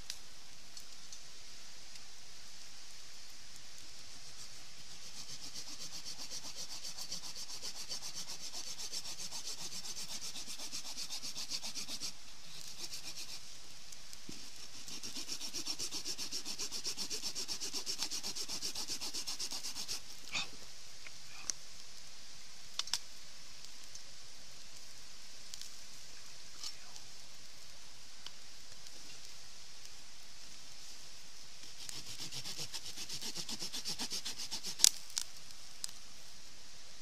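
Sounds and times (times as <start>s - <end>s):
steady hiss: 0.0s - 37.0s
rapid scraping strokes: 4.2s - 13.5s, 14.3s - 20.2s, 31.6s - 35.2s.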